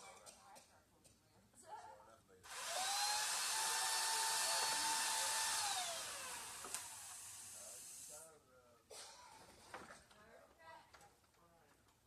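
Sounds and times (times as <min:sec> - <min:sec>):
chainsaw revving and slowing: 0:02.5 - 0:07.5.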